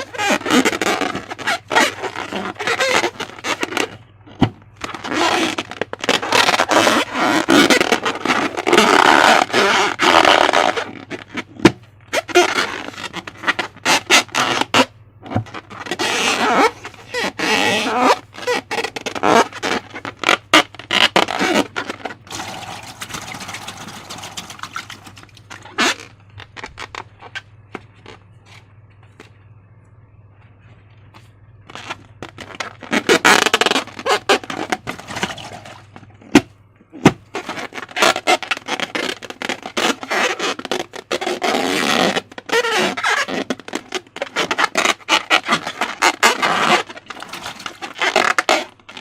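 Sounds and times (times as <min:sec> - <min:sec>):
hands rubbing balloons: 0:00.0 - 0:28.7, 0:31.2 - 0:49.0
slime squelching and crackling: 0:15.5 - 0:27.4.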